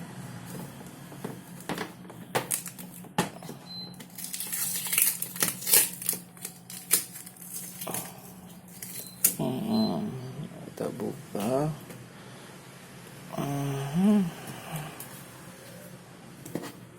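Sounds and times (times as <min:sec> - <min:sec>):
packaging rustling and crinkling: 0:01.5 - 0:03.1, 0:04.0 - 0:09.3.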